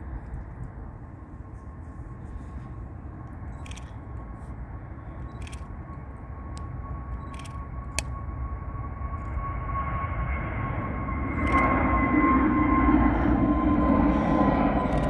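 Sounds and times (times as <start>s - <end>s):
distant jet engines: 0.0s - 15.0s
sharp clicks: 3.5s - 4.0s.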